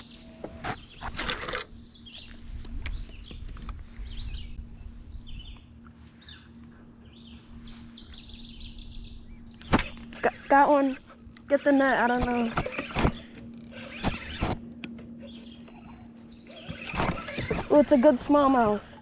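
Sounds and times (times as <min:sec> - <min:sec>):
songbirds chirping: 0:00.0 - 0:19.0
steady low hum: 0:00.0 - 0:19.0
bird trill: 0:06.2 - 0:18.0.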